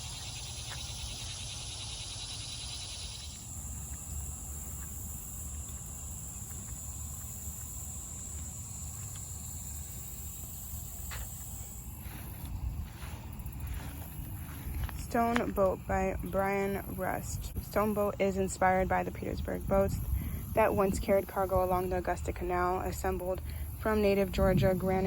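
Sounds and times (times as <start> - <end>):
insects droning: 0.0 - 25.0
low rumble: 11.6 - 17.7, 24.1 - 25.0.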